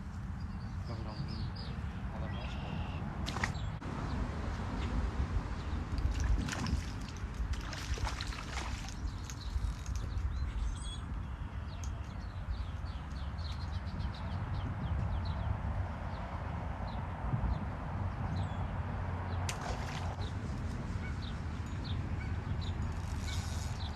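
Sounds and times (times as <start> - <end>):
small birds chirping: 0.4 - 3.8, 8.0 - 15.5.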